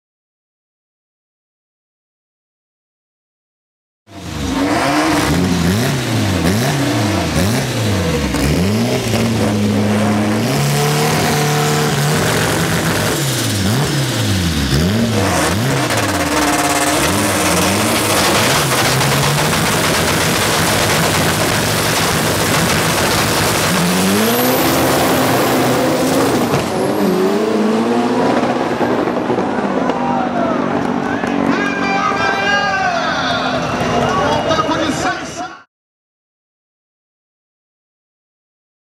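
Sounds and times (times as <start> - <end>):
cars launching at full throttle: 4.1 - 34.6
car engines revving: 4.1 - 35.0.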